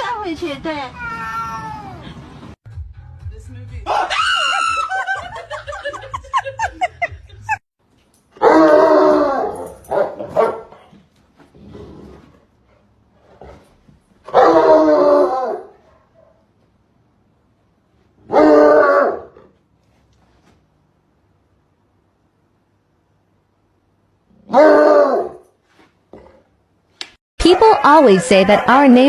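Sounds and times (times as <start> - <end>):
dog howling barks: 8.4 - 10.7, 14.3 - 15.8, 18.3 - 19.4, 24.5 - 25.4.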